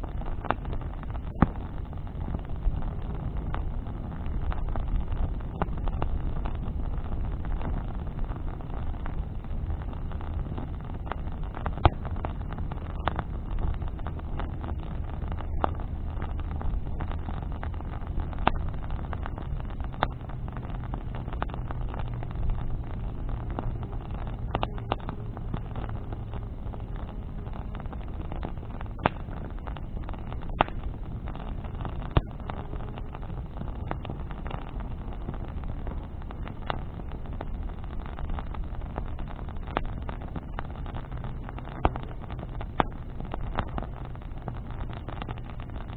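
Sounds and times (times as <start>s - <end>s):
bonfire crackling and popping: 0.0s - 45.9s
low rumble with faint hum: 0.0s - 45.9s.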